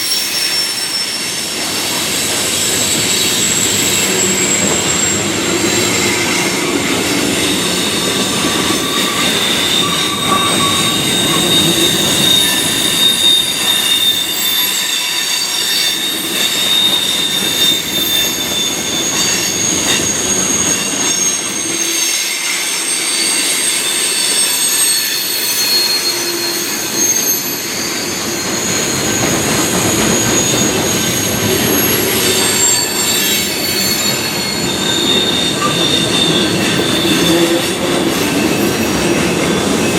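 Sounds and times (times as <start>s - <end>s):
train wheel flanges squealing: 0.0s - 39.9s
train wheels rumbling on rails: 0.0s - 39.9s.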